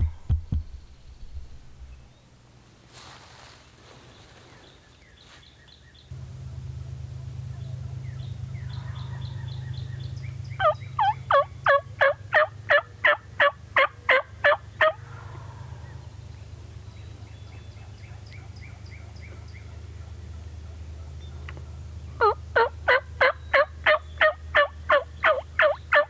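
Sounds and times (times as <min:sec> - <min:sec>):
low rumble: 0:00.0 - 0:02.4
turkey yelping: 0:08.4 - 0:16.0, 0:17.8 - 0:26.0.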